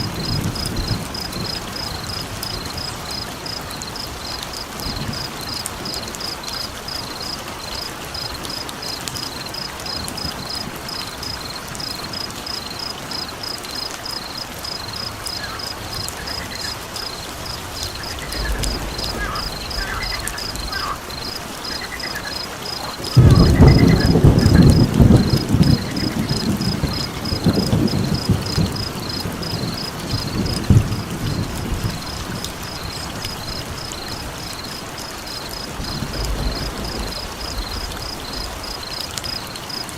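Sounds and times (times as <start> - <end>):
thunder rumble: 0.0 - 8.6, 14.3 - 39.0
rain hiss: 0.0 - 39.9
insect-like high chirp: 0.2 - 30.6
short calls: 14.9 - 24.8.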